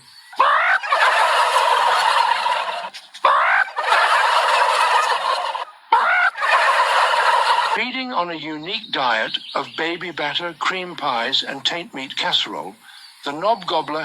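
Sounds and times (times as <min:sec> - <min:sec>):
turkey gobbling: 0:00.3 - 0:07.8.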